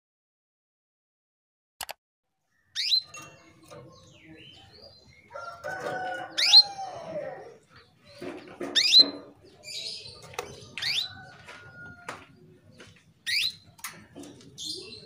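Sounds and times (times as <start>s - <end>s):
canary calls sweeping downward: 6.0s - 7.2s.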